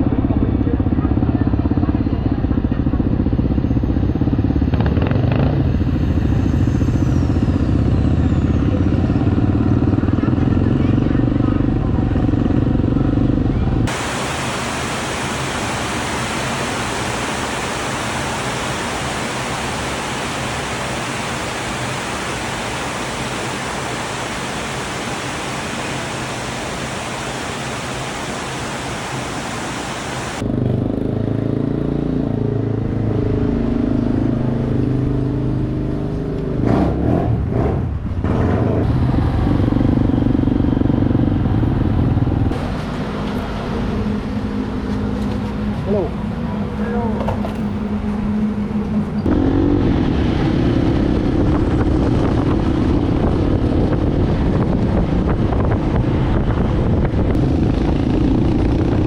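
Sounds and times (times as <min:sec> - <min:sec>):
steady hiss: 0:13.9 - 0:30.4.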